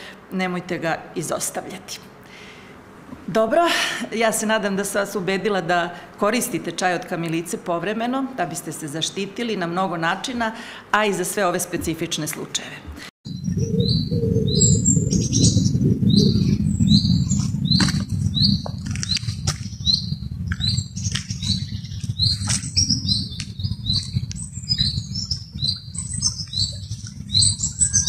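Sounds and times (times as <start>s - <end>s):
small bird chirping: 13.3s - 28.0s
constant low rumble: 13.4s - 28.0s.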